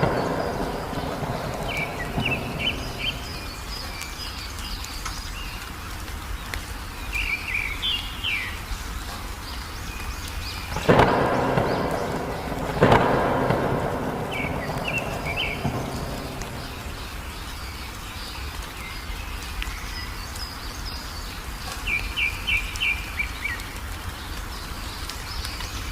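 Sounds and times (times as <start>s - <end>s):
thunder rumble: 0.0s - 4.4s, 10.6s - 18.0s
rain hissing: 0.0s - 25.9s
songbirds chirping: 0.0s - 25.9s.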